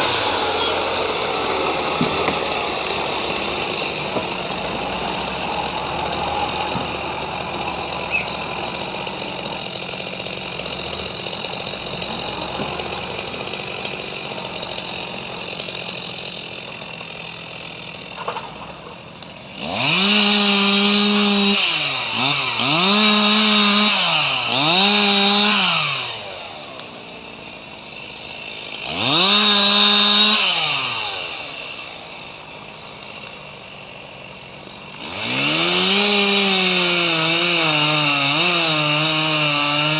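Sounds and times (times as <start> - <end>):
engine idling: 0.0 - 21.2
chainsaw revving: 0.0 - 39.9.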